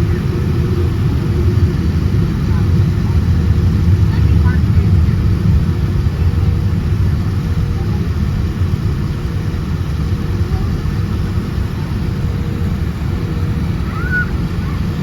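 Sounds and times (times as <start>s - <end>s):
aircraft engine rumble in cabin: 0.0s - 15.0s.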